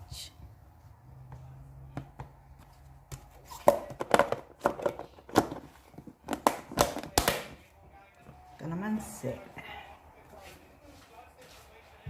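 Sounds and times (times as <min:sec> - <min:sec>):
plastic container knocks and clicks: 0:03.6 - 0:05.6.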